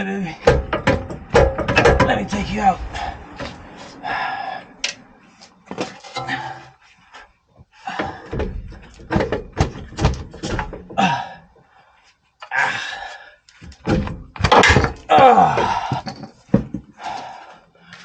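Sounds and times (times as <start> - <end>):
metal knocks and thuds: 0.4 - 3.7, 7.9 - 11.0, 13.6 - 17.0.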